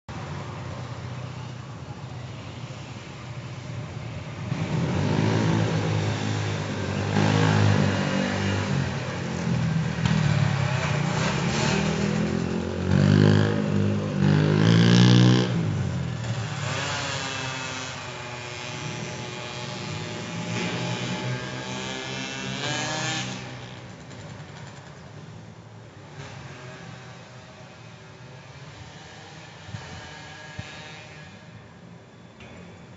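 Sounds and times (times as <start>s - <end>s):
motorcycle engine revving past: 4.5s - 24.8s.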